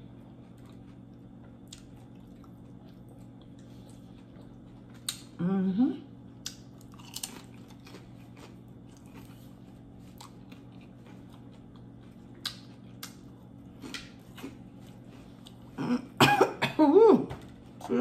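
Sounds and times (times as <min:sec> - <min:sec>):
faint steady hum: 0:00.0 - 0:18.0
crunching tortilla chips: 0:06.4 - 0:15.6.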